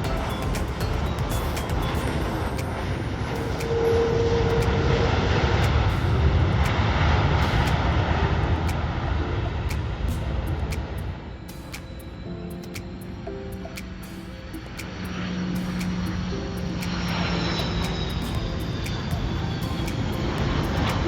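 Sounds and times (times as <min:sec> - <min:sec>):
jet airliner engine rushing: 0:14.5 - 0:21.0.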